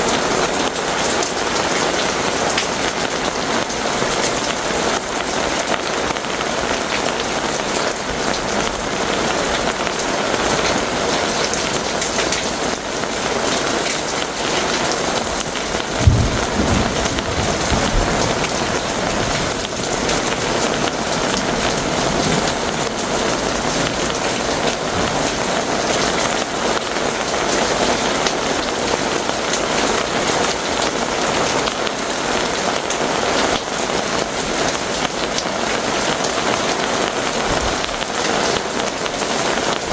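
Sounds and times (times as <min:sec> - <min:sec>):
heavy rain pouring: 0:00.0 - 0:39.9
thunder clap: 0:15.2 - 0:26.9.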